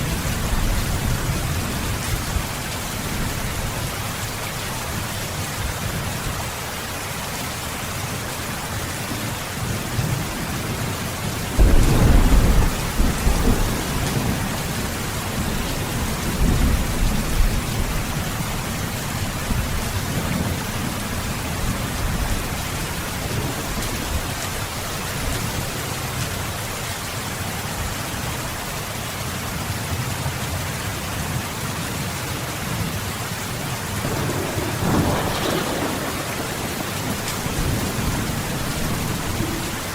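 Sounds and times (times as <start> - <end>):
steady heavy rain: 0.0 - 39.9
thunder rumbling: 9.8 - 25.7, 34.0 - 39.9.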